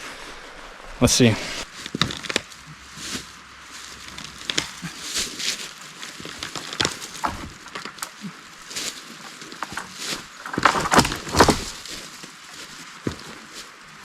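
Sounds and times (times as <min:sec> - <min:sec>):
rustling underfoot: 0:00.0 - 0:14.0
dry wood cracking and snapping: 0:01.7 - 0:13.6.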